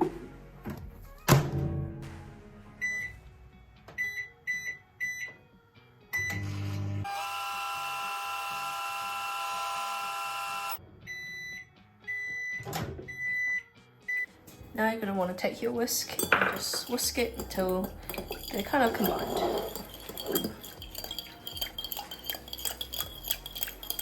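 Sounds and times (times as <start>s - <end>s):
microwave whining hum: 6.3s - 10.8s
microwave end beeps: 11.1s - 14.2s.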